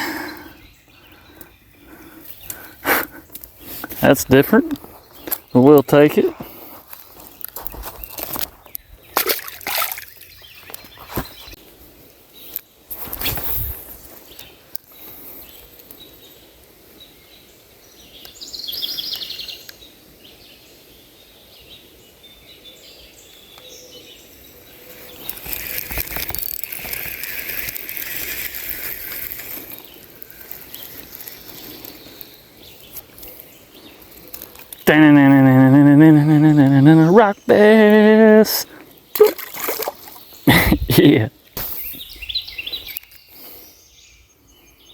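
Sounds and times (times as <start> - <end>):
water sloshing and splashing: 9.2 - 10.4, 39.1 - 40.3.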